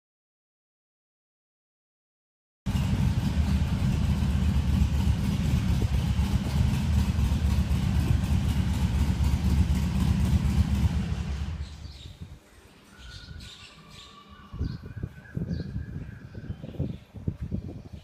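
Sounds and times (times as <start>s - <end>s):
motorcycle engine idling: 2.7s - 12.0s.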